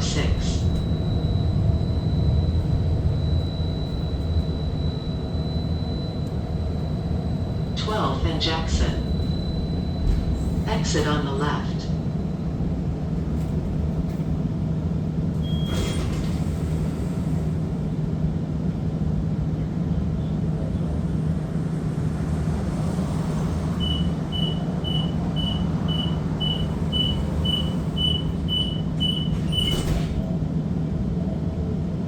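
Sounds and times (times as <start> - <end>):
streetcar hum: 0.0 - 32.0
short high beeps: 23.8 - 30.0.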